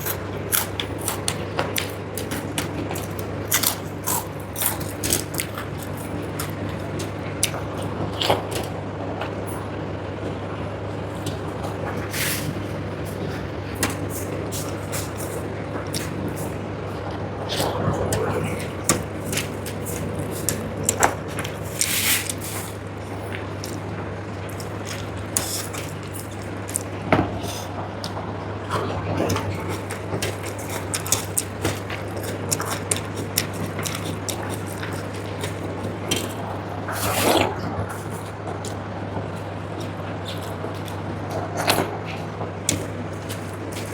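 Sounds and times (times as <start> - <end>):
person chewing: 0.0 - 8.7, 17.5 - 28.2, 28.8 - 43.9
steady low hum: 0.0 - 43.9.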